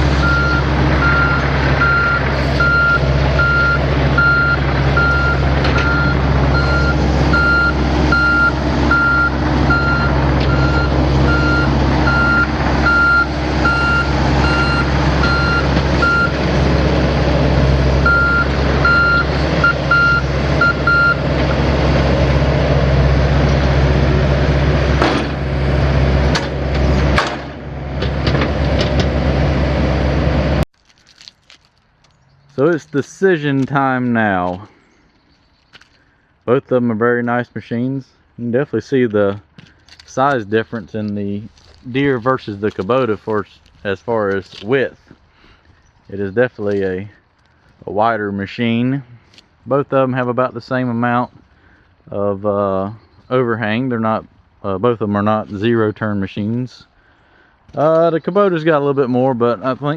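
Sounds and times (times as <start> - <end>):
diesel engines running: 0.0 - 59.9
travel alarm beeping: 0.2 - 16.4, 18.0 - 21.2.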